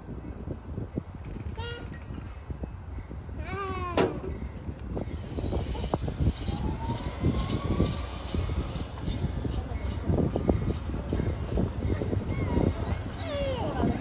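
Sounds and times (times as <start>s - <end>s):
low train rumble: 0.0s - 14.0s
train wheels clicking on rails: 5.0s - 14.0s.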